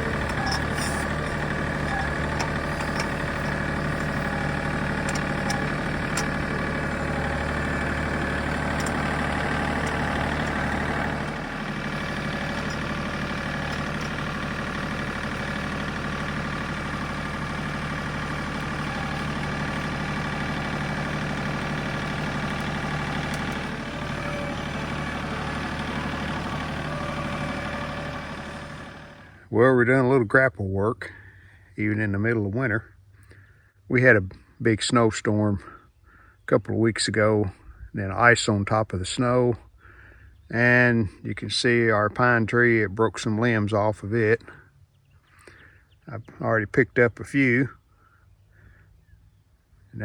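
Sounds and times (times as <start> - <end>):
tractor diesel engine running: 0.0 - 29.5.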